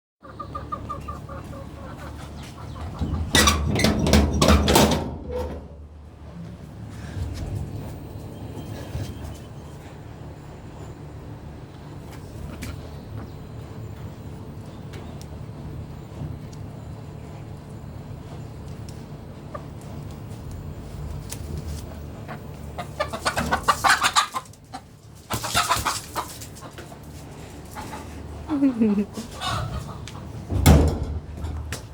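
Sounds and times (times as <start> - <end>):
chicken clucking: 0.2 - 3.8, 22.1 - 30.5.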